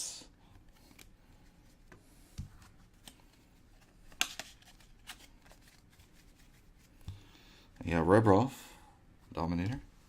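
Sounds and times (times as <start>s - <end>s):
cards rustling and clicking: 0.5s - 7.3s.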